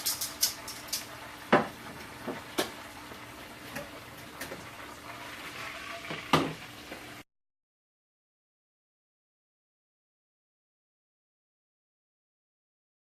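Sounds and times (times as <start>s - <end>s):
kitchenware clinking against dishes: 0.0s - 1.7s.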